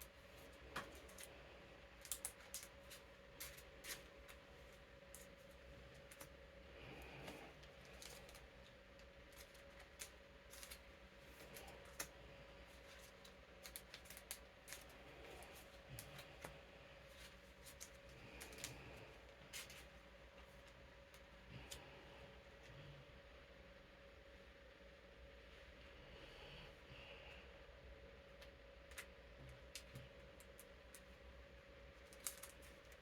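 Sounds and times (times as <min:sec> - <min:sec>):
electric fan humming: 0:00.0 - 0:33.0
playing cards rustling and clicking: 0:00.1 - 0:21.9, 0:28.4 - 0:31.2, 0:31.9 - 0:33.0.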